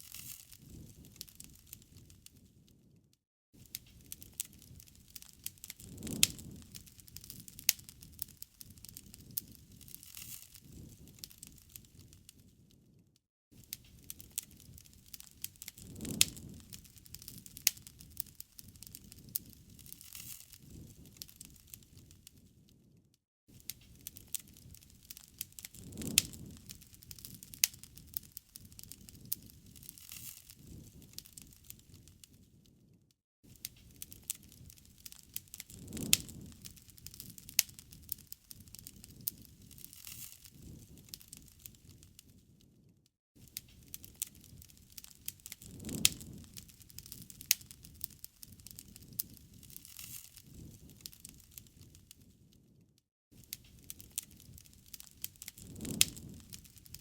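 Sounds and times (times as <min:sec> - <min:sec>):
campfire wood crackling: 0:00.0 - 0:03.0, 0:03.6 - 0:13.0, 0:13.6 - 0:52.8, 0:53.4 - 0:57.0
sharp pops from fire: 0:00.0 - 0:03.0, 0:03.6 - 0:13.0, 0:13.6 - 0:22.9, 0:23.5 - 0:42.8, 0:43.4 - 0:52.8, 0:53.4 - 0:57.0.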